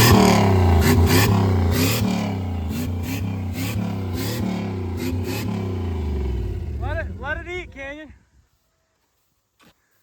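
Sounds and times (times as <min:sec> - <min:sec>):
pickup truck engine revving: 0:00.0 - 0:07.5.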